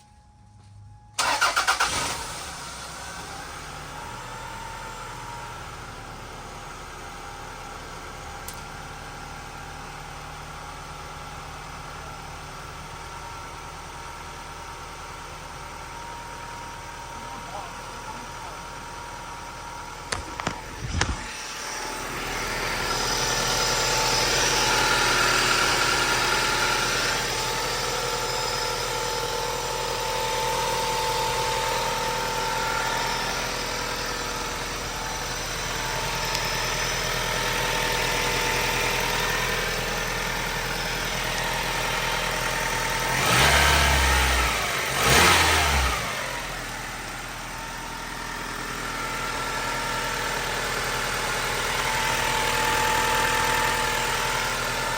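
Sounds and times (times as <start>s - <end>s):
engine revving: 1.2s - 3.3s, 20.2s - 47.2s
car engine idling: 1.2s - 54.9s.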